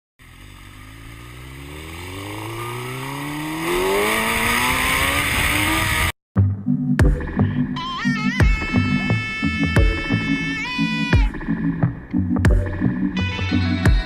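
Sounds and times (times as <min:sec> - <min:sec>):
car engine accelerating: 0:00.2 - 0:06.2.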